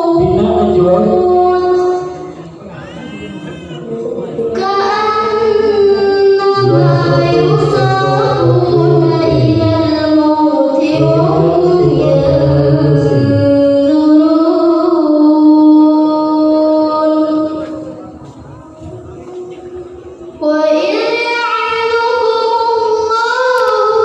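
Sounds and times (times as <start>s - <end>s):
woman singing: 0.0s - 2.3s, 4.4s - 17.9s.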